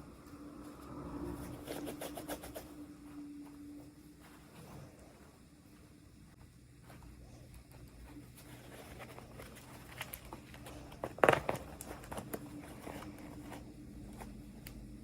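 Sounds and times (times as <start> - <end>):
plastic packaging clicks and rustles: 8.4 - 13.6
plastic packaging crinkling: 8.4 - 13.7.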